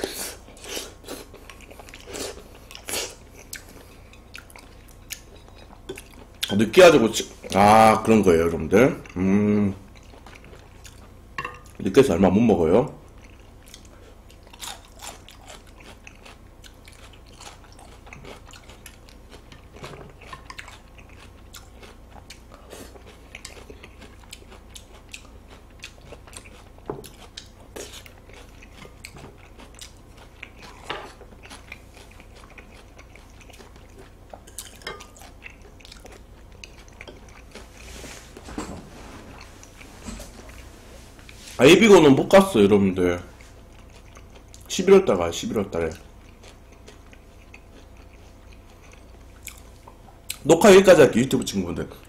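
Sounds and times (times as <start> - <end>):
person chewing food: 0.0 - 6.6, 9.0 - 11.8, 13.0 - 41.6, 43.3 - 44.8, 45.8 - 50.4.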